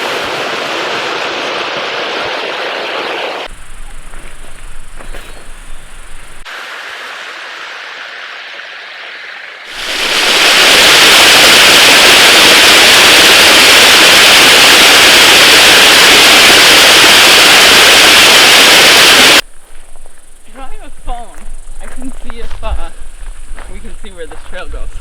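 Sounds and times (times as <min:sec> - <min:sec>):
rushing creek water: 0:06.2 - 0:11.3.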